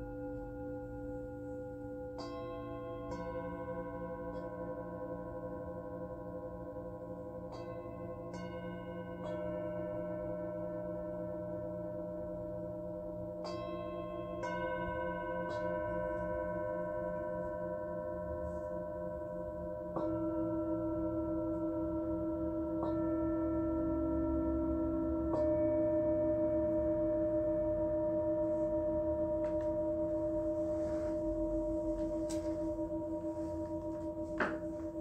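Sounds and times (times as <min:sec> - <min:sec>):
singing bowls ringing: 0:00.0 - 0:35.0.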